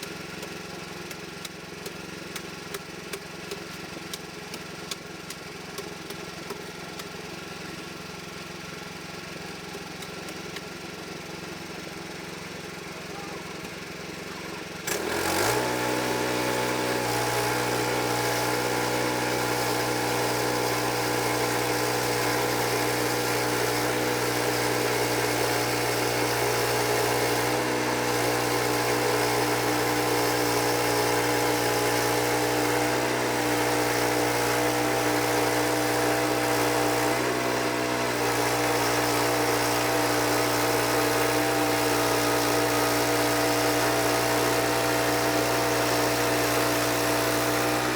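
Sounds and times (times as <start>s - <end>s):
engine running at high speed: 14.7s - 47.9s.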